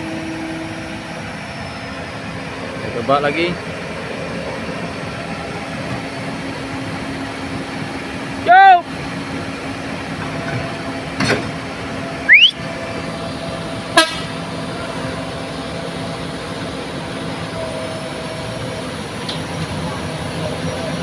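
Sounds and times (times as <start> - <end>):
loud rising whistle: 0.0 - 2.7, 12.2 - 12.7
heavy truck engine running: 0.0 - 21.0
truck horn toot: 13.9 - 14.5.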